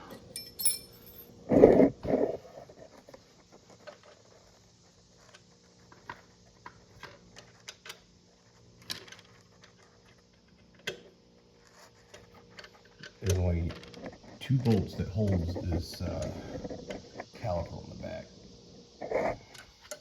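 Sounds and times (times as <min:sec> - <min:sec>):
tools and small parts clicking: 0:00.1 - 0:01.3.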